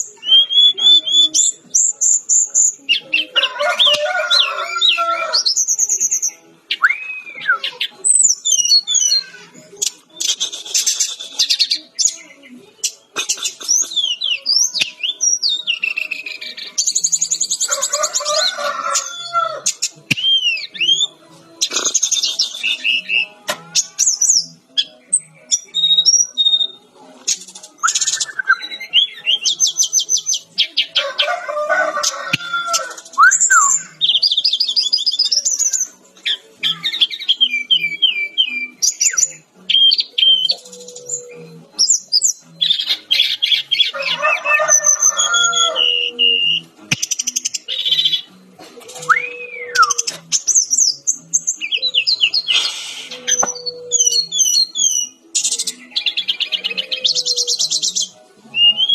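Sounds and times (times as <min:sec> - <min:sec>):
bird singing trills and whistles: 0:00.0 - 0:03.4, 0:04.2 - 0:31.0, 0:32.3 - 0:44.0, 0:44.6 - 0:58.9.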